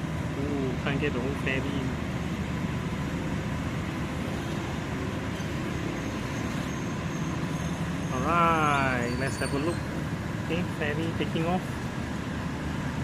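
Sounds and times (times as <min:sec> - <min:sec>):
low engine rumble: 0:00.0 - 0:13.0
traffic noise: 0:00.0 - 0:13.0.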